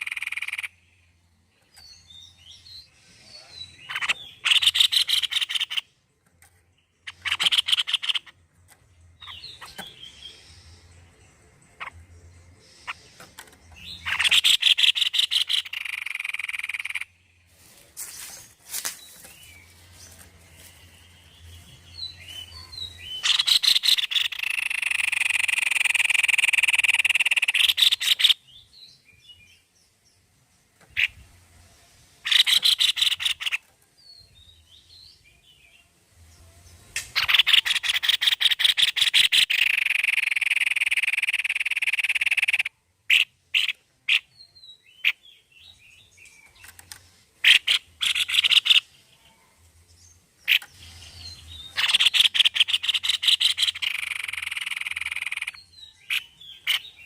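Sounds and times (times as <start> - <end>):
babbler singing rattling trill: 0.0 - 0.8, 22.5 - 28.4, 37.2 - 44.3, 51.7 - 56.9
soft bird chirps: 0.0 - 57.0.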